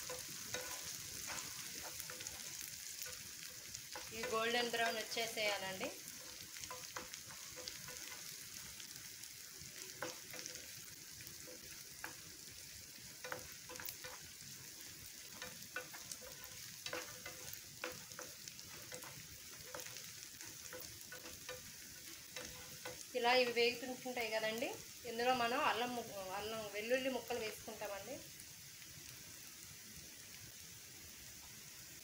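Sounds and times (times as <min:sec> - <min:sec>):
food sizzling in oil: 0:00.0 - 0:32.0
wooden spatula scraping pan: 0:15.2 - 0:23.1.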